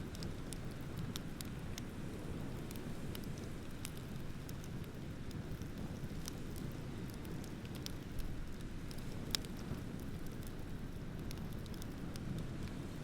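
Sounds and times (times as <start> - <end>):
bonfire crackling and popping: 0.0 - 13.0.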